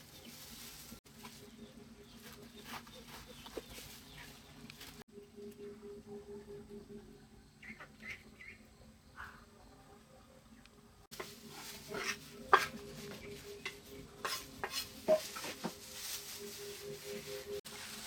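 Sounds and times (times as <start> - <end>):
utensil scraping in a pan: 11.1 - 18.0.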